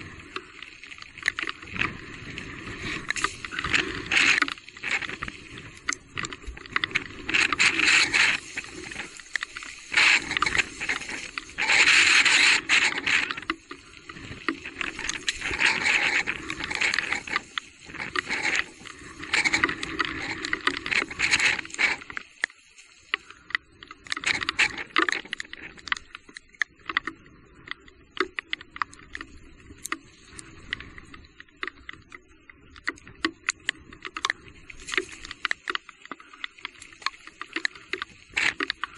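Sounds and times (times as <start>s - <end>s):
bicycle tyre noise on trail: 0.0s - 38.9s
bicycle clicks and rattles: 2.8s - 22.6s, 23.2s - 30.1s.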